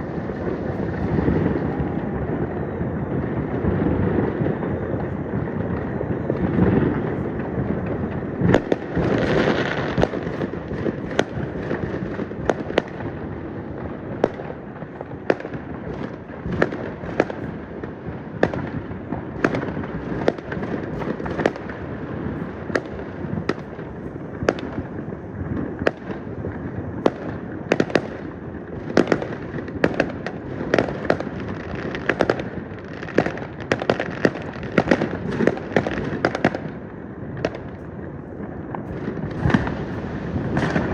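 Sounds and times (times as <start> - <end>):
fireworks cracks and bangs: 0.0 - 40.9
rumble of distant explosions: 0.0 - 40.9.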